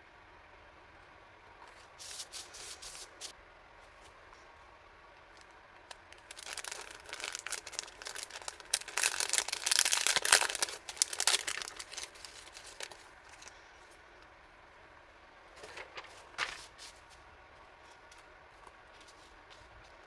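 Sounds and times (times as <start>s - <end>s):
packaging crinkling: 5.4s - 13.6s.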